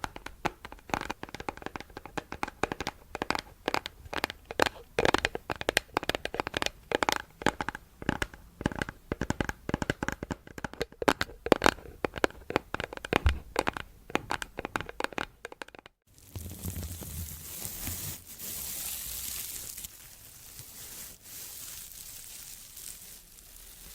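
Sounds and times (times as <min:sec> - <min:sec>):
hands handling clicks and crackles: 0:00.0 - 0:18.0
steady hiss: 0:16.1 - 0:23.9.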